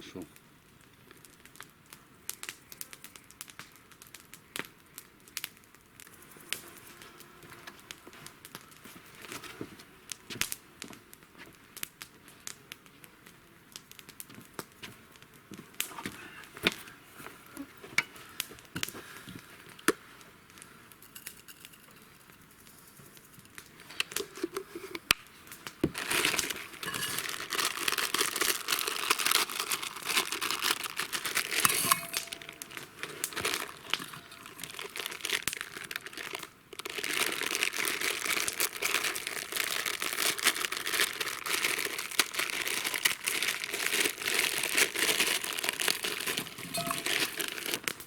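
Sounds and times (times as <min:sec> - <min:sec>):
campfire crackling: 0:00.2 - 0:48.0
water boiling in a pot: 0:25.8 - 0:37.0, 0:42.7 - 0:48.0.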